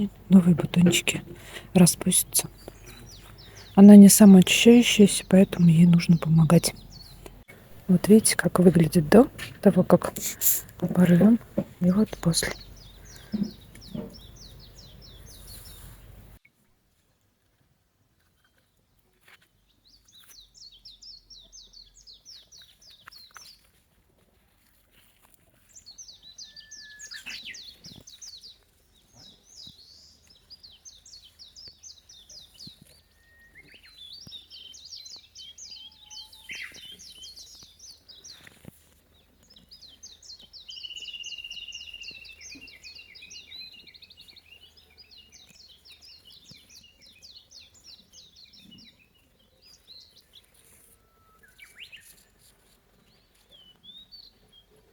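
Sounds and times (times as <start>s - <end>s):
songbird trilling: 0.0s - 16.2s, 30.6s - 38.5s, 39.6s - 49.0s.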